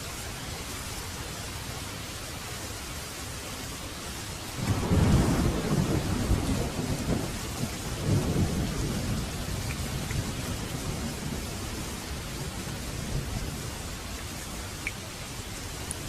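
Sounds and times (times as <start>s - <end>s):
heavy rain: 0.0s - 16.0s
thunder rolling: 4.6s - 13.7s.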